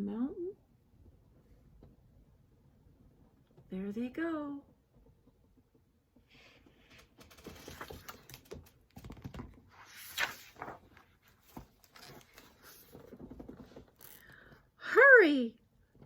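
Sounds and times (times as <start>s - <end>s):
paper rustling: 6.8s - 14.2s.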